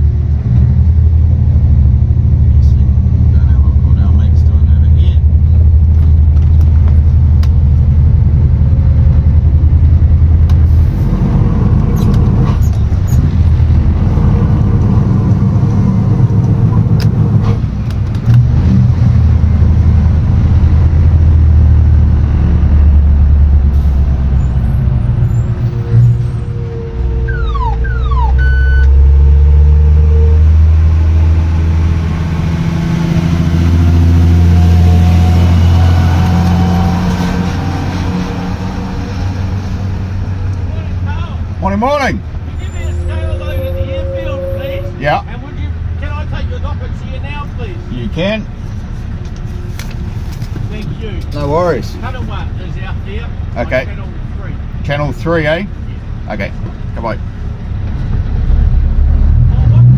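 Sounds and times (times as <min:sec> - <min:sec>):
diesel truck engine under load: 0:00.0 - 0:59.9
brief falling squeals: 0:24.4 - 0:29.0, 0:42.6 - 0:45.0.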